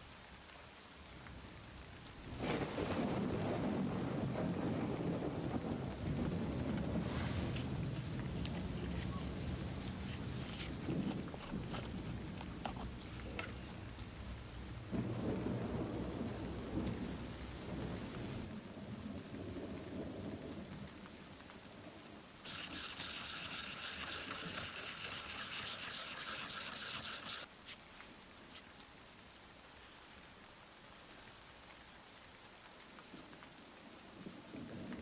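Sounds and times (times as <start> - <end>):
thunder rumble: 2.2 - 8.8, 14.2 - 20.9
heavy rain hiss: 6.2 - 18.6.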